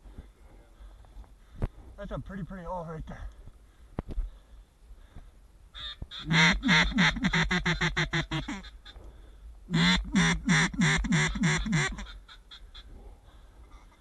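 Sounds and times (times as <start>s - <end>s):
duck quacking rapidly: 5.8s - 9.0s, 9.7s - 12.8s.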